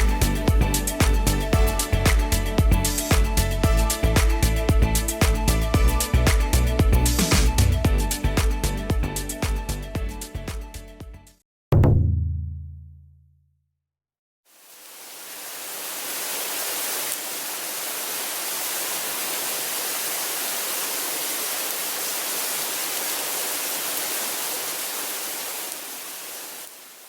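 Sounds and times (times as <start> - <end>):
steady high-pitched hiss: 14.5 - 27.0.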